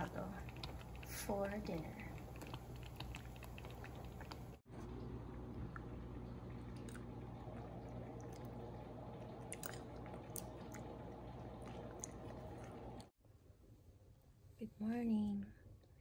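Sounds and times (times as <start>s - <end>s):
chewing and wet mouth sounds: 0.0s - 13.1s.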